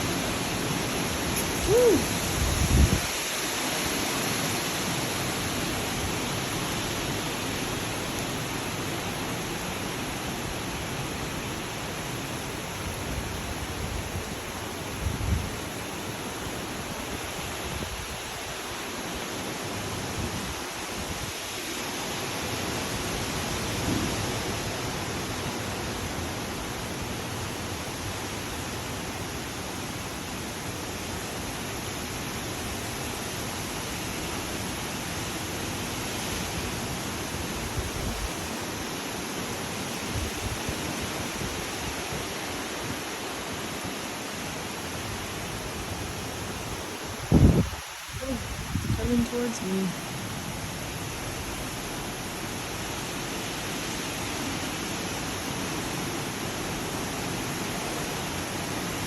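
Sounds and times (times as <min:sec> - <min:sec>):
wind gusts thumping microphone: 0:00.0 - 0:03.3, 0:45.1 - 0:49.5
wind and rain rushing: 0:00.0 - 0:59.0.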